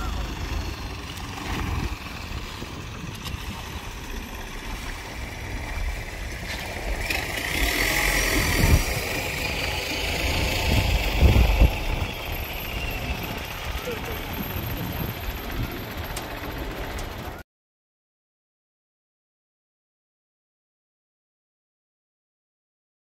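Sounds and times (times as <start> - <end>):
engine running with low rumble: 0.0 - 17.4.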